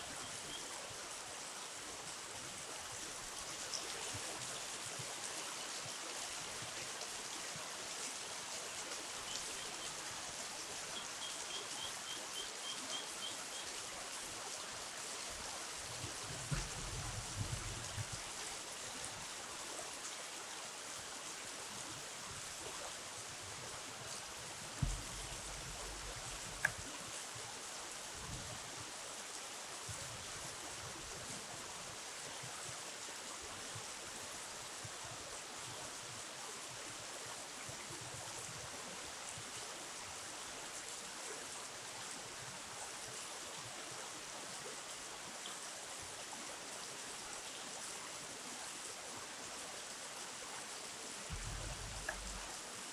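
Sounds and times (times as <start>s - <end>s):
flowing river water: 0.0s - 52.9s
soft low thump: 16.4s - 18.1s, 24.8s - 26.8s, 51.3s - 52.5s.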